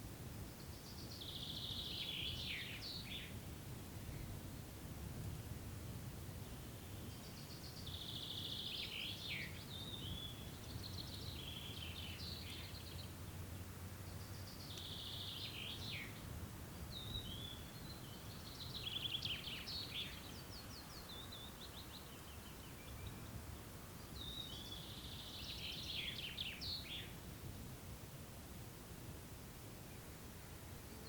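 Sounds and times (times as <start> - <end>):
songbird trilling and chirping: 0.6 - 3.3, 6.4 - 13.2, 14.1 - 16.2, 16.9 - 23.4, 24.0 - 27.1.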